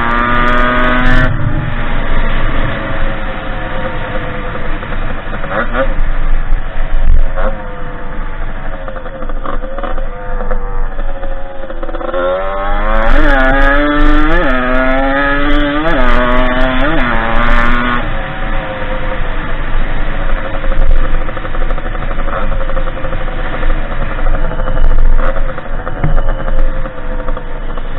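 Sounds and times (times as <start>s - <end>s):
dirt bike two-stroke engine revving: 0.0s - 1.4s, 8.9s - 18.4s.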